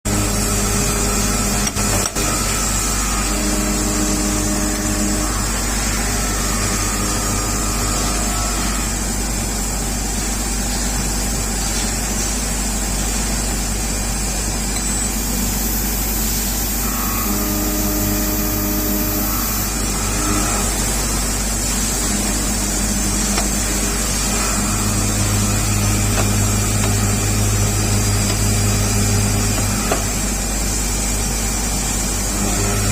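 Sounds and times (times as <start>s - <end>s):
constant electrical hum: 0.1s - 32.9s
workshop machinery running: 0.1s - 32.9s
low hum: 14.7s - 30.2s
switching electronic tones: 14.8s - 19.8s.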